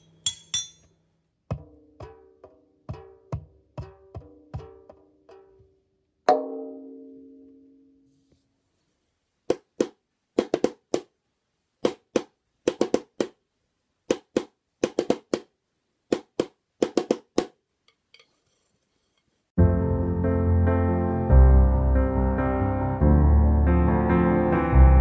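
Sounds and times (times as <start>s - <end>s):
drumsticks tapping a homemade drum: 1.5s - 5.7s.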